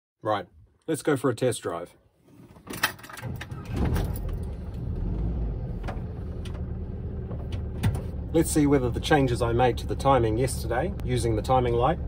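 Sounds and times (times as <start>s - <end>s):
engine cranking: 2.8s - 12.0s
engine idling: 3.6s - 12.0s.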